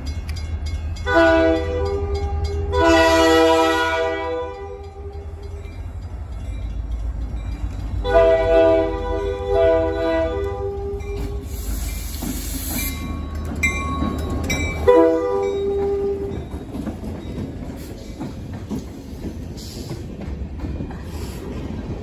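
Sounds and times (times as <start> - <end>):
train horn: 1.0 - 5.6, 8.0 - 11.4, 14.8 - 16.4
train wheels clicking on rails: 4.4 - 9.5, 10.3 - 22.0.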